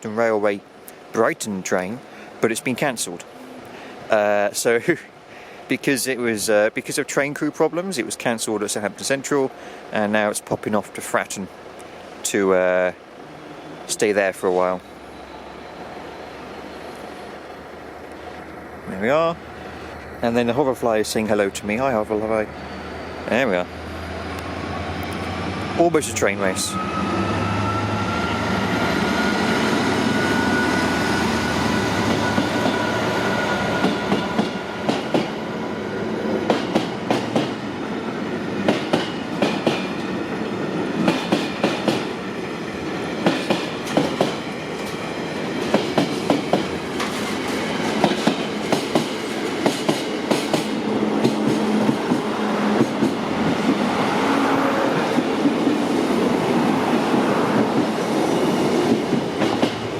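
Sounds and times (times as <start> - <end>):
steady train rumble: 0.0 - 59.9
train wheels clicking over rail joints: 33.7 - 35.4, 36.4 - 37.6, 38.6 - 40.2, 41.0 - 42.2, 43.0 - 54.0, 57.5 - 59.9.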